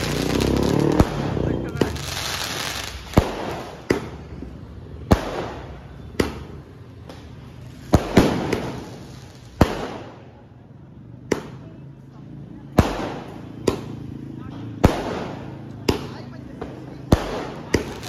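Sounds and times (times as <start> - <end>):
fireworks crackle and hiss: 0.0 - 4.2, 7.2 - 10.1, 17.1 - 18.0.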